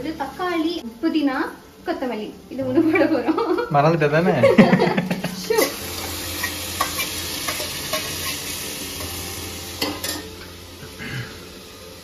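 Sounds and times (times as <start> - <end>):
onions sizzling in a pot: 0.0 - 12.0
ladle scraping and clinking pot: 5.1 - 9.2, 9.8 - 10.4.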